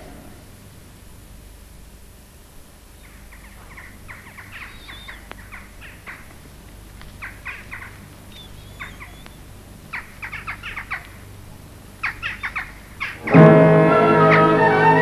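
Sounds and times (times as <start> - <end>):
birds chirping: 2.7 - 15.0
bird whistle: 3.8 - 5.6, 7.5 - 11.0.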